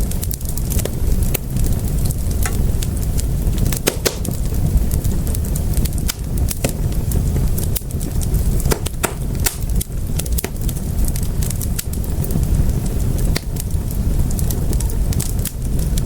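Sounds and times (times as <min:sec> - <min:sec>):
fireplace fire crackling and popping: 0:00.0 - 0:16.0
low rumble of flames: 0:00.0 - 0:16.0.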